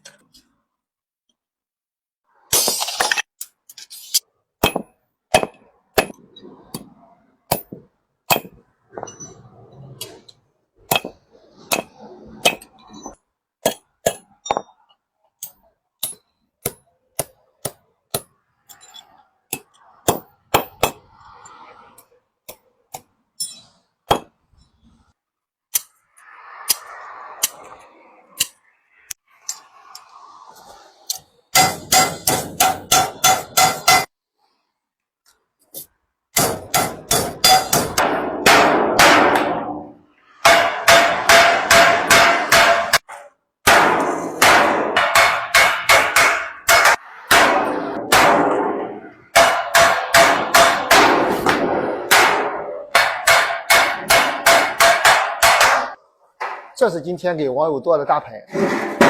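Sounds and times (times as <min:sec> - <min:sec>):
hammer clanging on sheet metal: 0:31.6 - 0:34.1, 0:36.4 - 0:43.1, 0:43.7 - 0:56.7.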